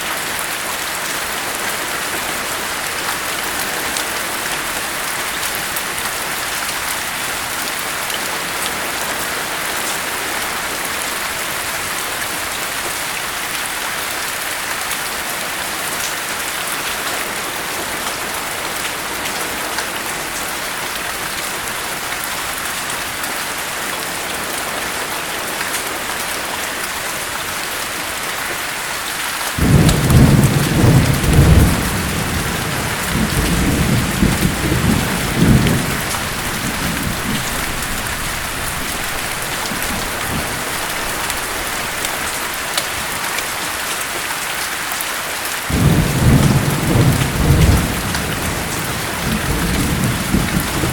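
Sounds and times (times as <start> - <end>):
steady rain hiss: 0.0 - 50.9
thunder rumbling: 29.6 - 42.6, 45.7 - 50.9.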